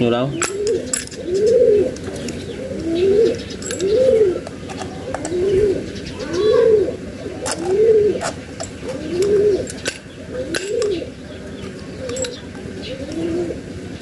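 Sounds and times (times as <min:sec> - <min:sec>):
bird cooing: 0:00.3 - 0:14.0
small metal parts clicking: 0:00.4 - 0:02.4, 0:03.6 - 0:05.4, 0:12.1 - 0:12.4.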